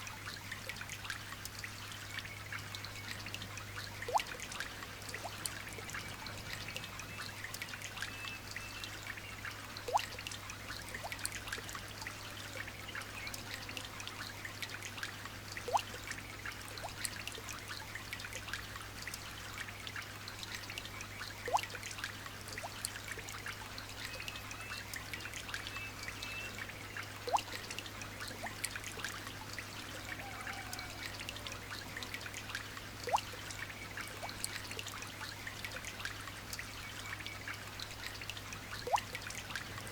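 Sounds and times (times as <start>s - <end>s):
light rain pattering: 0.0s - 39.9s
single water drip plopping: 4.0s - 6.0s, 9.9s - 11.6s, 15.6s - 16.1s, 21.4s - 23.3s, 27.2s - 29.2s, 32.4s - 34.9s, 38.0s - 39.4s.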